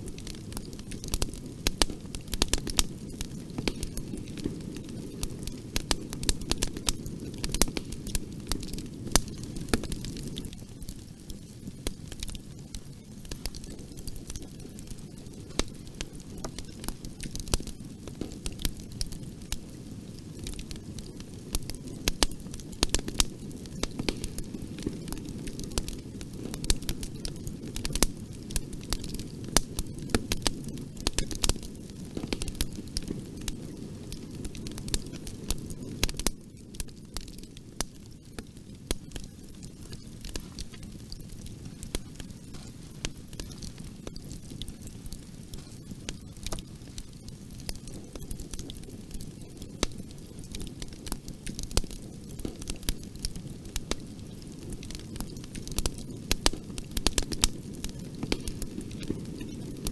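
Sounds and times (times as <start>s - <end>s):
fire crackling and popping: 0.0s - 59.9s.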